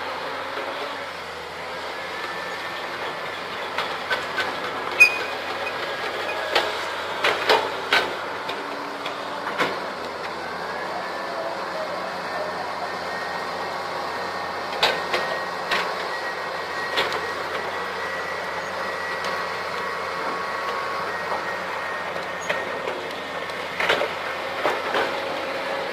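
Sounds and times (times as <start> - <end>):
diesel engine running: 0.0 - 25.9
metallic track clanks: 3.7 - 9.9.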